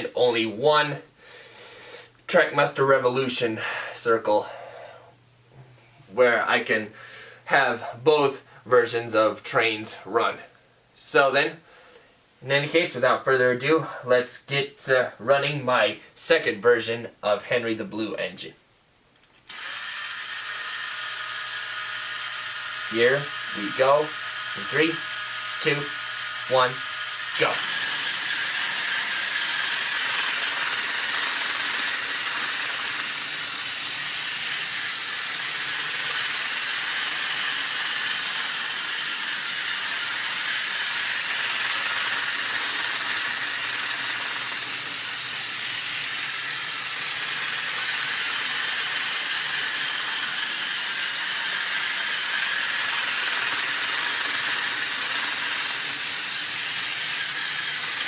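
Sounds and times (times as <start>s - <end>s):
toy train motor whirring: 19.4s - 58.0s.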